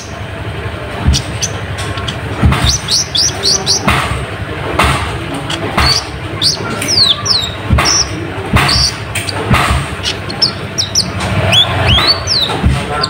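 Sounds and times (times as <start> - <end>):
dull thumps: 0.9 - 13.0
sunbird chirping: 1.0 - 3.9, 5.5 - 13.0.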